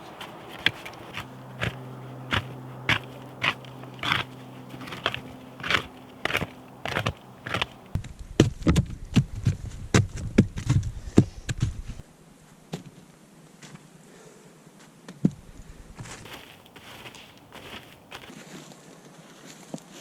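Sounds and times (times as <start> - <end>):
footsteps crunching in snow: 0.0 - 8.0, 15.7 - 20.0.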